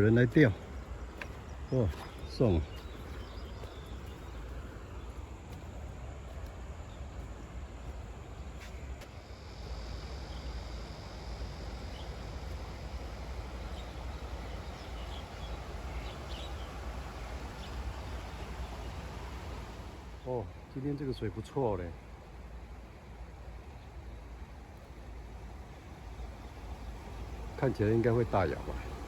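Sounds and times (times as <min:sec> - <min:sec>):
stream water flowing: 0:00.0 - 0:20.7, 0:21.3 - 0:29.0
high insect buzz: 0:01.0 - 0:16.7.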